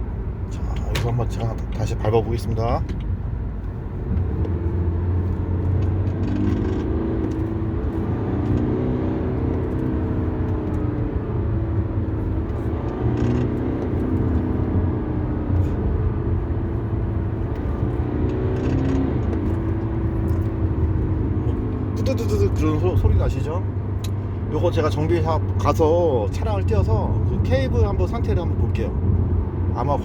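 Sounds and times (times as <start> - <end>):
diesel car engine accelerating: 0.0 - 30.0.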